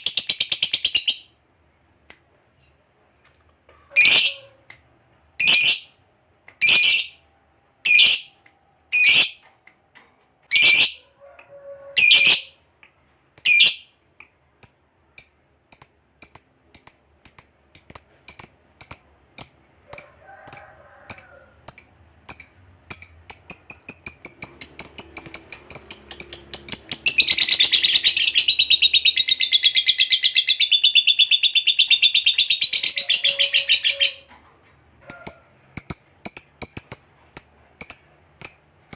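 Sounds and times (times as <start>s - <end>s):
lovebird chattering trill: 14.6s - 34.2s, 35.1s - 38.6s.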